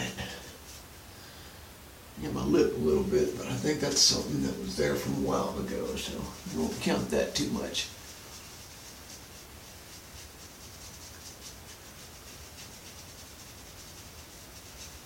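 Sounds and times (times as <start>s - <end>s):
razor scraping stubble: 5.2s - 15.0s.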